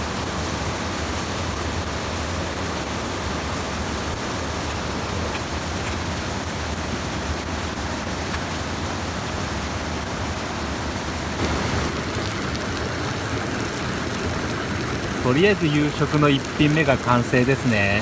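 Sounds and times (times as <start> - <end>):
stream water rushing over weir: 0.0 - 18.0
faint crackles: 11.4 - 18.0.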